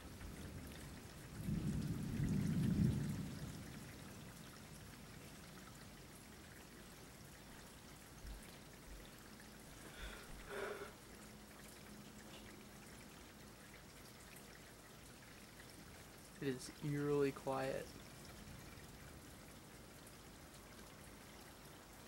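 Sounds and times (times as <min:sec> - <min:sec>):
faint steady rain: 0:00.0 - 0:22.0
water trickling and dripping: 0:00.0 - 0:22.0.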